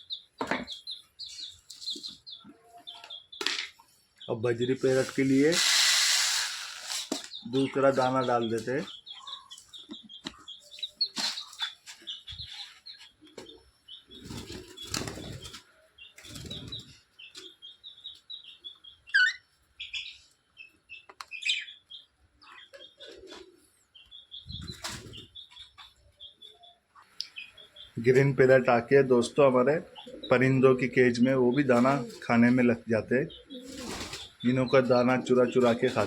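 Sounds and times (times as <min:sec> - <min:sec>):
cage birds chirping: 0:00.0 - 0:05.5, 0:06.5 - 0:36.0
birds flapping wings: 0:14.2 - 0:15.6, 0:16.2 - 0:16.9.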